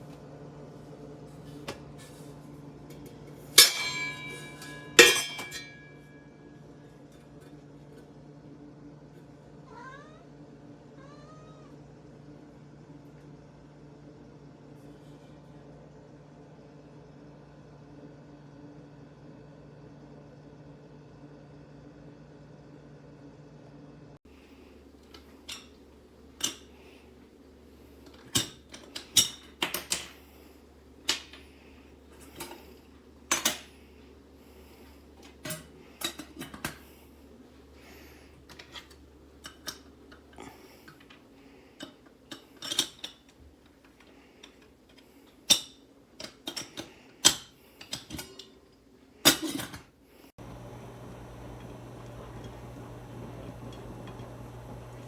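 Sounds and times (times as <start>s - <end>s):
low steady hum: 50.4s - 55.0s.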